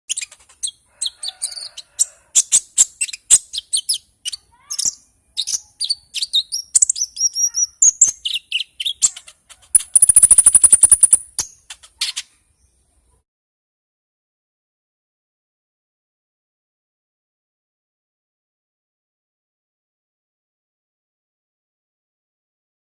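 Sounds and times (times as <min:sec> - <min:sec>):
songbird chirping and whistling: 0:02.4 - 0:12.7
fast high buzzing trill: 0:09.8 - 0:11.2.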